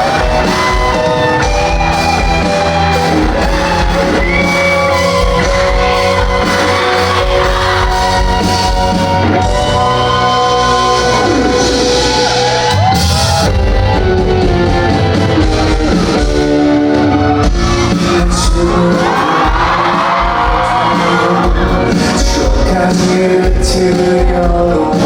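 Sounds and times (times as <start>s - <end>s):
fans shouting and screaming: 0.0s - 24.2s
live pop-rock band playing: 0.0s - 25.0s.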